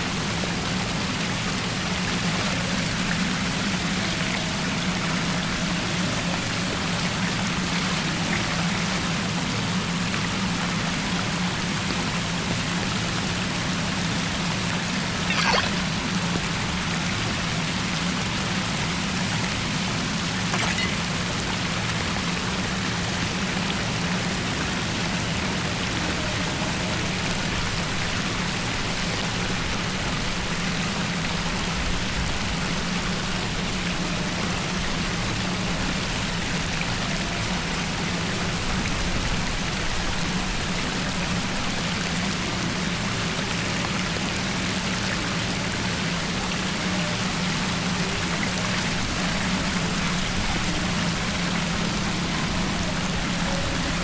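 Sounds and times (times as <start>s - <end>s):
low even hum: 0.0s - 44.4s, 46.0s - 54.0s
water rushing into drain: 15.0s - 16.5s.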